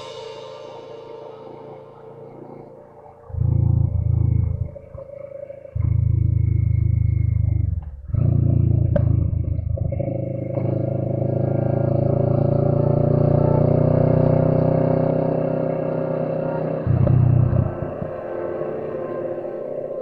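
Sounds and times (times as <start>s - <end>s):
motorcycle engine running: 5.8s - 20.0s.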